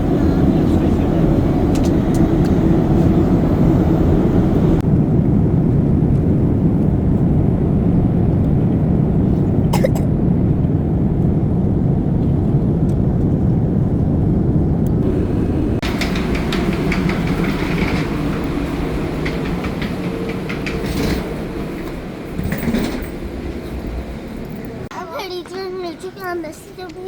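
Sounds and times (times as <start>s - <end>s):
jet airliner cabin rumble: 0.0s - 27.0s.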